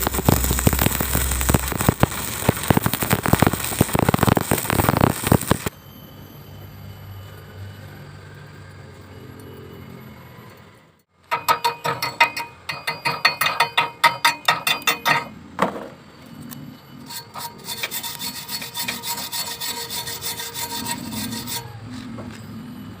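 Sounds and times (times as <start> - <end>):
high-pitched scratching on metal: 0.0 - 5.7, 16.9 - 22.2
metal being scraped and ringing: 11.0 - 15.5, 16.3 - 23.0.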